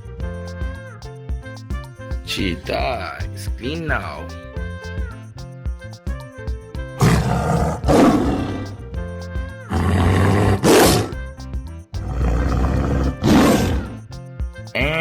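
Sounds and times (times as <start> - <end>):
background music: 0.0 - 15.0
big cat roar: 7.0 - 8.8, 9.8 - 11.2, 12.0 - 14.0.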